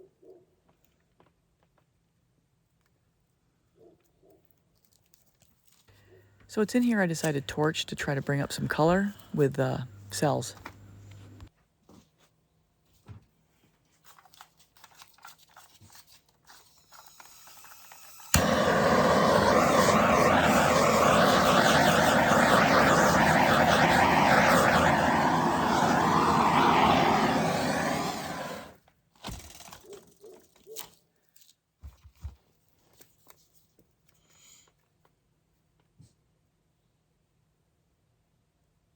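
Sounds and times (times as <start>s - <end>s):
torch hissing: 18.4s - 28.8s.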